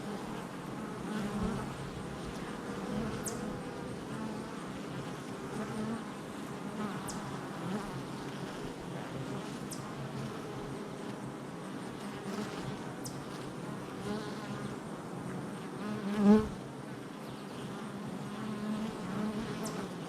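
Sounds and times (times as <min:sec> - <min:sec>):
bees buzzing: 0:00.0 - 0:12.9.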